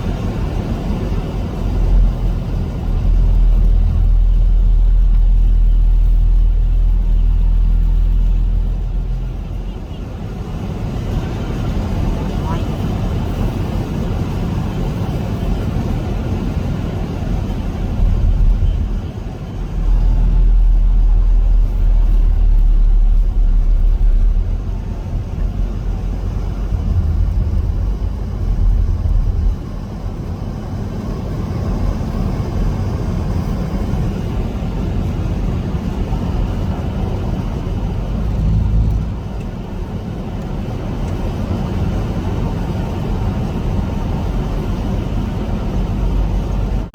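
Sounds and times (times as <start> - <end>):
wind buffeting microphone: 17.8 - 30.2.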